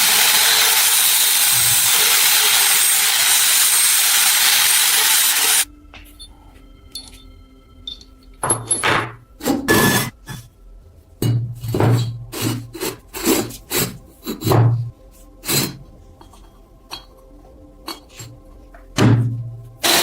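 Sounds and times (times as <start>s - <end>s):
faint background music: 5.6s - 20.0s
hand rubbing on metal: 12.2s - 16.6s.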